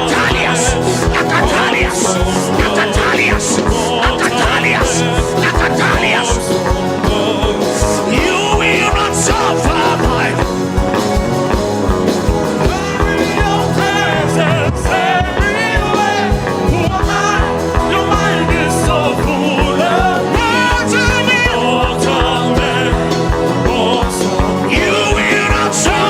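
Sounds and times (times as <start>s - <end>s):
steady low beat: 0.0s - 6.8s
person singing or chanting: 0.0s - 10.2s
held keyboard chords: 0.0s - 26.0s.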